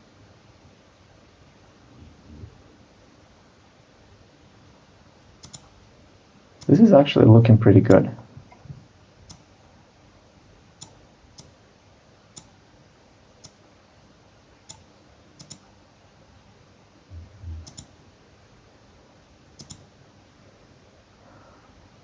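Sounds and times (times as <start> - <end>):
computer mouse clicking: 5.4 - 5.8, 9.2 - 9.5, 10.8 - 11.6, 12.3 - 12.6, 13.4 - 13.6, 14.6 - 15.8, 17.5 - 17.9, 19.6 - 19.9
soft low thud: 17.1 - 17.7.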